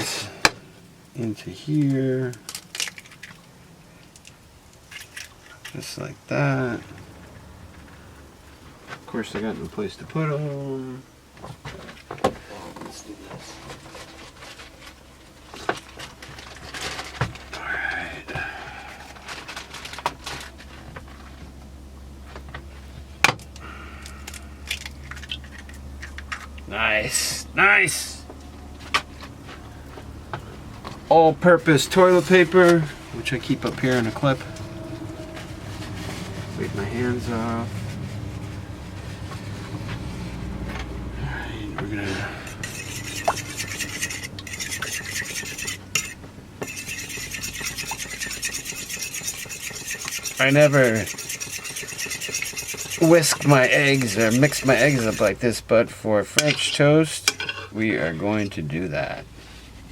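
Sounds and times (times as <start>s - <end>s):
steady low hum: 10.9s - 56.2s
whisk beating eggs in a bowl: 42.4s - 55.6s.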